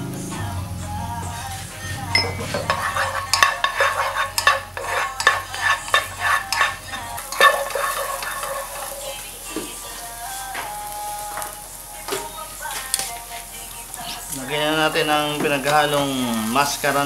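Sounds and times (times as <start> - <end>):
onion sizzling: 0.0 - 17.0
spatula scraping a frying pan: 1.2 - 14.4.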